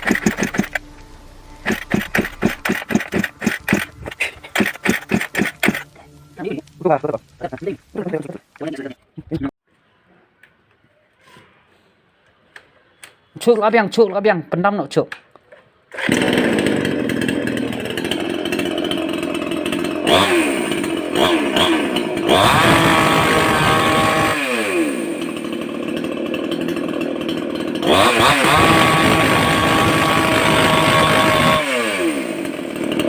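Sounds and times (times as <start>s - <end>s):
chainsaw engine revving: 0.0s - 6.6s, 15.9s - 33.0s.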